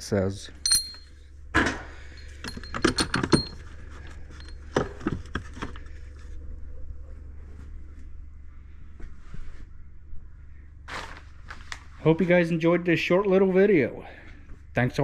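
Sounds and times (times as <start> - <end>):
steady low hum: 0.0 - 15.0
metal balls clinking: 0.6 - 1.2, 2.1 - 3.7, 4.3 - 4.6.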